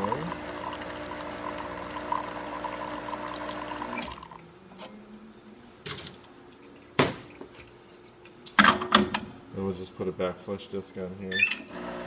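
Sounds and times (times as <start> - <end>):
espresso machine pump humming: 0.0 - 4.4, 11.7 - 12.0.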